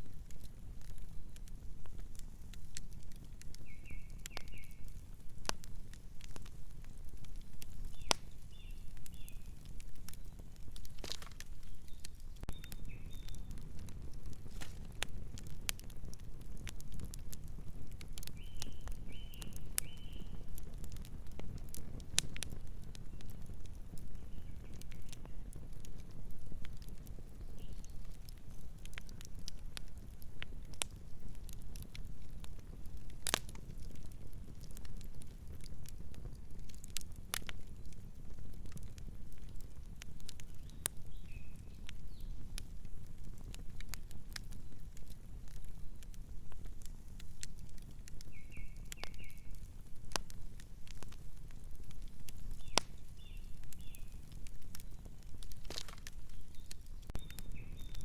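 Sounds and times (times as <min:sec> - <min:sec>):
fire crackling and popping: 0:00.0 - 0:58.0
small bird chirping: 0:03.6 - 0:04.9, 0:11.6 - 0:13.6, 0:56.3 - 0:58.0.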